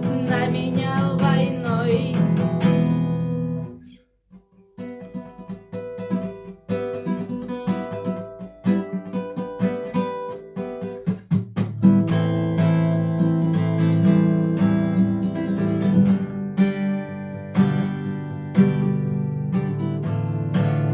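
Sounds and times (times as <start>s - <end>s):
picked guitar notes: 0.0s - 12.6s
acoustic guitar strumming: 0.0s - 20.9s.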